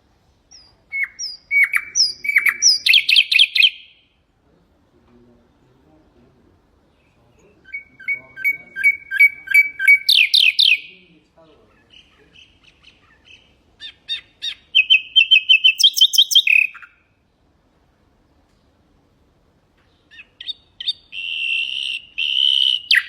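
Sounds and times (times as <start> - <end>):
nightingale singing: 0.4 - 4.3, 6.8 - 17.6, 19.8 - 23.0.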